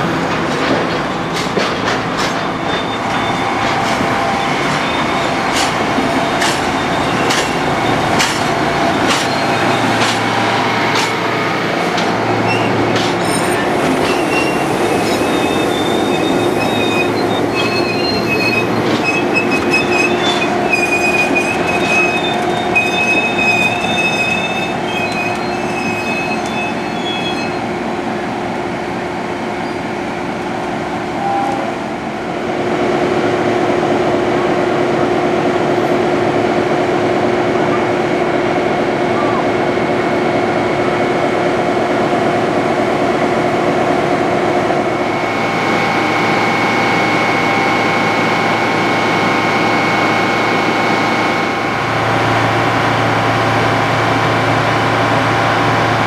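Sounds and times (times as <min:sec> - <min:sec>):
train wheels clicking over rails: 0:00.0 - 0:26.9
train flange squeal: 0:02.3 - 0:11.2, 0:12.3 - 0:27.7, 0:29.6 - 0:29.9, 0:31.2 - 0:31.8.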